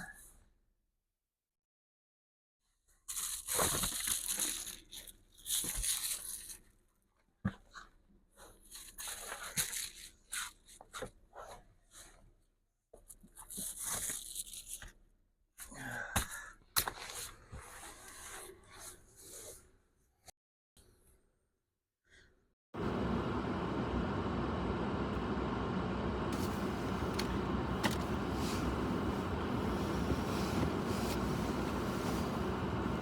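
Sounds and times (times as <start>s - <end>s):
rustling and tearing: 3.1s - 6.6s.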